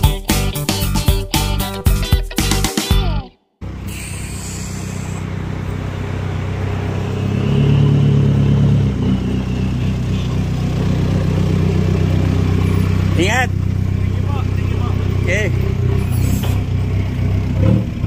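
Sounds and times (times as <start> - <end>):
vehicle engine humming: 3.6 - 18.0.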